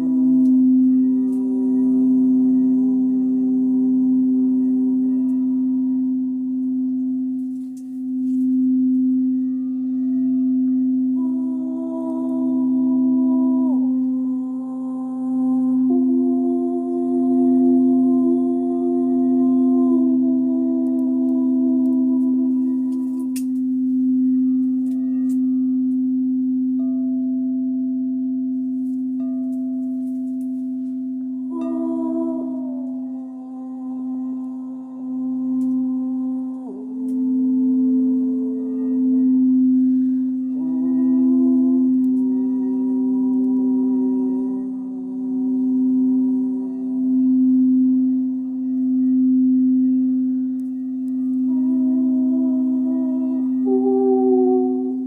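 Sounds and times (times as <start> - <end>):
crystal singing bowl ringing: 0.0 - 55.0.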